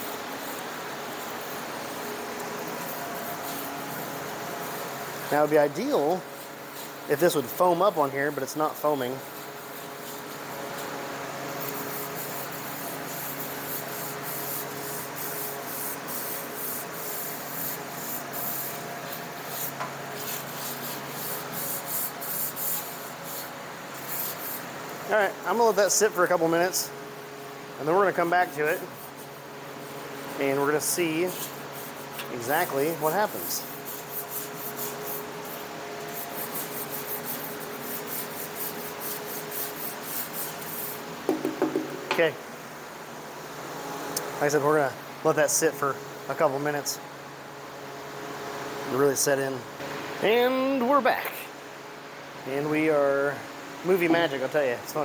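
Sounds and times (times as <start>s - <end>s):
brush scrubbing metal: 0.0s - 26.9s, 27.8s - 42.3s
steady low hum: 0.0s - 55.0s.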